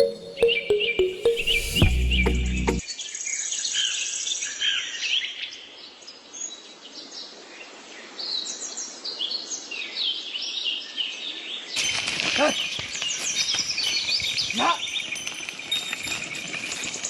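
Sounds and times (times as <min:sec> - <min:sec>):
birds chirping: 0:00.0 - 0:02.8.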